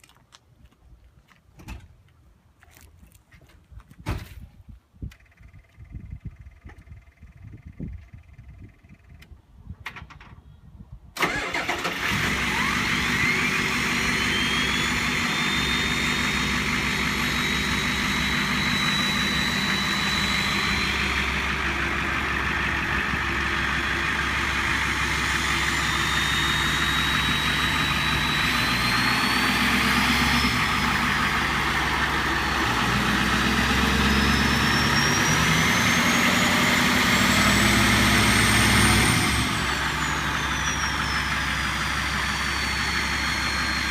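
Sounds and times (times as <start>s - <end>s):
pickup diesel engine running: 11.2s - 43.9s
high turbo whistle: 12.4s - 43.9s.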